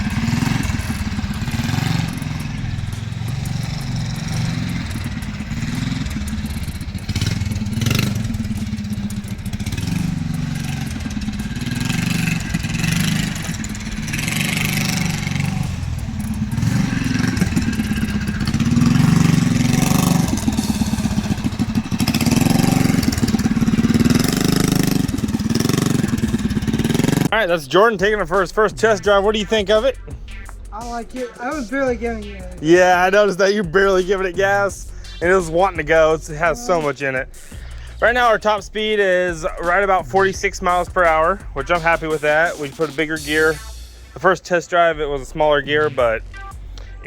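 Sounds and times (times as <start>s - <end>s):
mini bike engine revving: 0.0s - 27.3s.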